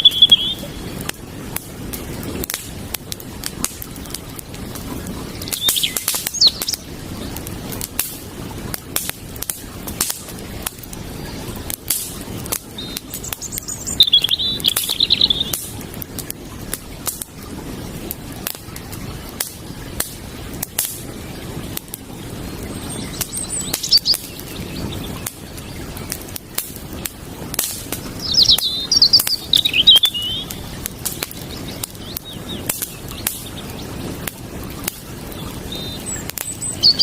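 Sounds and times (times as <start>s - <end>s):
small bird chirping: 0.0s - 0.8s, 5.4s - 6.8s, 12.8s - 15.6s, 22.8s - 25.7s, 28.2s - 30.6s, 35.4s - 37.0s
campfire crackling and popping: 0.0s - 37.0s
creek water flowing: 0.0s - 37.0s.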